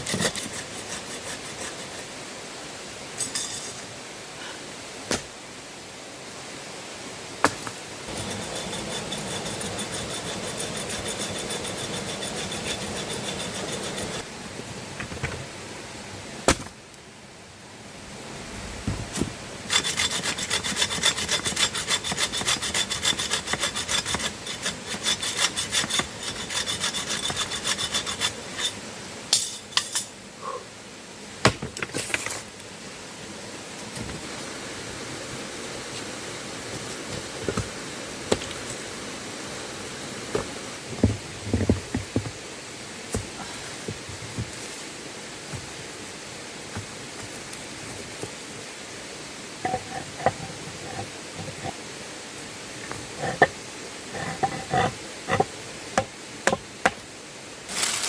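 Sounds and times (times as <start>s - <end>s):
hand saw cutting wood: 0.0s - 2.0s, 8.1s - 14.3s, 19.7s - 28.8s, 52.9s - 55.5s.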